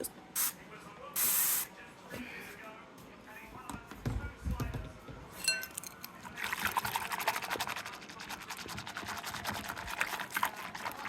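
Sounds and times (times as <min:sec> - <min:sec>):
water trickling into a container: 0:05.7 - 0:11.0.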